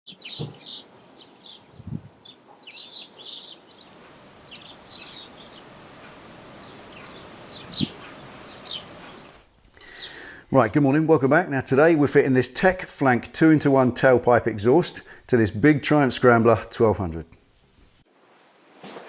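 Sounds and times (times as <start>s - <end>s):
small birds chirping: 0.1s - 10.4s
faint steady hiss: 3.8s - 19.0s
low thumps: 3.9s - 9.4s.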